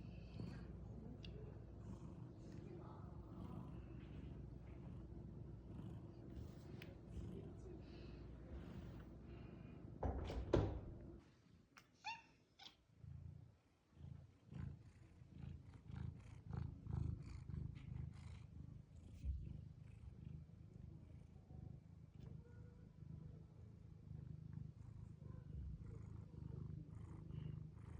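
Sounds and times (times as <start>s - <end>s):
cat purring: 0.0s - 27.9s.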